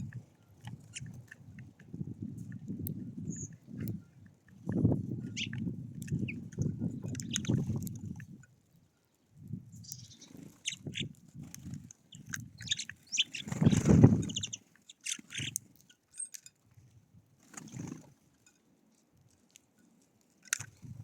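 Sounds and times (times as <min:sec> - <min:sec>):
birds chirping: 0:00.0 - 0:07.8, 0:08.7 - 0:11.2, 0:12.0 - 0:16.4.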